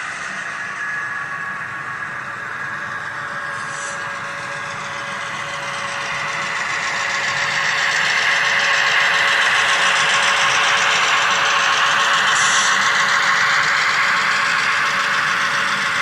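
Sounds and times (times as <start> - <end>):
model train motor hum: 2.7 - 16.0
train wheels clicking: 3.5 - 16.0.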